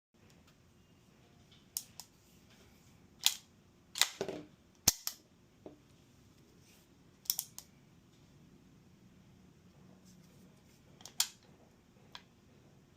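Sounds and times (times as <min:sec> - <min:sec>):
pistol metallic clicks: 0:07.2 - 0:07.7.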